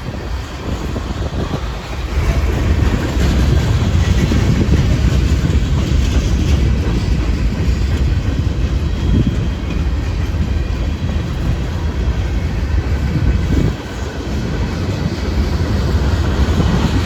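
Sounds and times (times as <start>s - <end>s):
train wheels clicking over rail joints: 0.0s - 17.0s
wind rumble on microphone: 0.0s - 17.0s.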